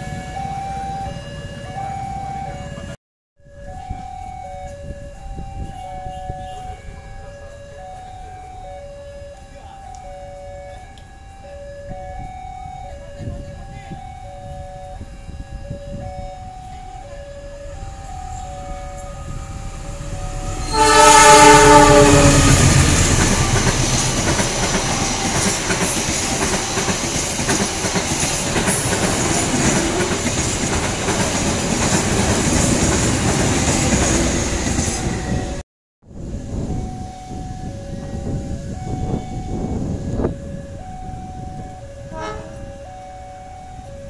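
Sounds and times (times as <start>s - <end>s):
passenger train rushing past: 0.0s - 2.9s, 12.1s - 35.6s, 36.2s - 43.9s
two-note electronic warning tone: 0.0s - 29.3s, 36.7s - 44.0s
locomotive horn: 3.7s - 30.4s, 36.8s - 43.9s.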